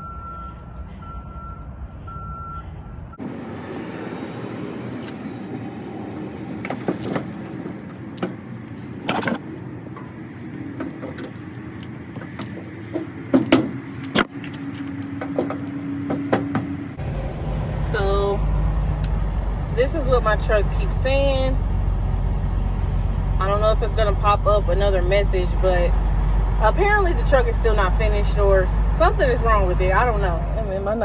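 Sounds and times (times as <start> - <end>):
reversing alarm beeping: 0.0 - 3.2
vehicle hum: 0.0 - 31.0.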